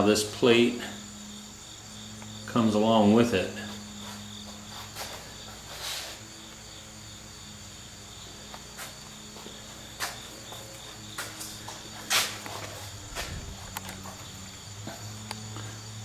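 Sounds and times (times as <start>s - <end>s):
high-pitched insect trill: 0.0s - 16.0s
low steady hum: 12.7s - 15.8s.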